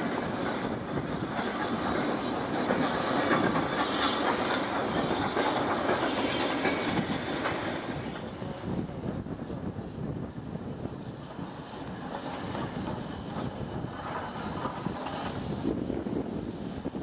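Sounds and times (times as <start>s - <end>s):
train wheels clattering over rail joints: 0.0s - 17.0s.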